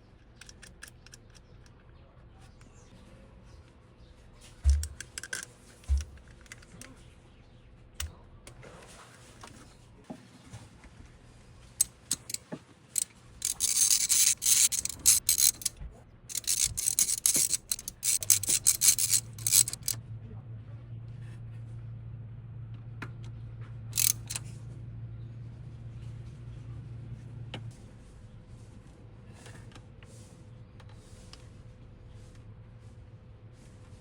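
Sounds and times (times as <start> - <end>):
clicks: 11.8 - 12.4, 13.0 - 20.0, 24.0 - 24.4
scraping and rubbing: 11.9 - 12.4, 13.4 - 15.7, 16.3 - 20.0, 24.0 - 24.4.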